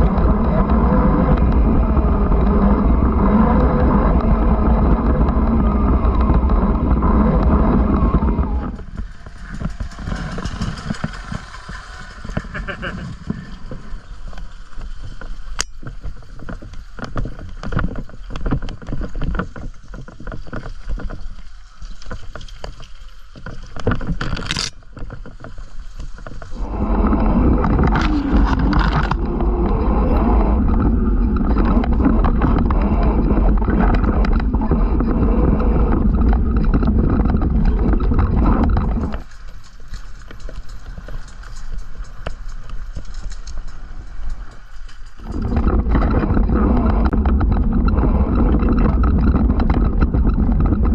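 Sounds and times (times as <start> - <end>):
loud rush with heavy rumble: 0.0 - 14.6, 26.4 - 39.3, 45.2 - 50.9
bike knocking and rattling: 0.0 - 50.9.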